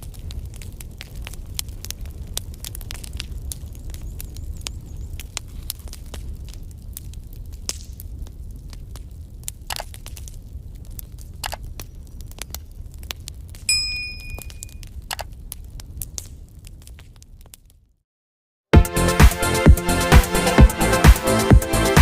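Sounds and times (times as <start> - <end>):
simulated firewood crackling: 0.0 - 18.0
short electronic beep: 13.7 - 14.8.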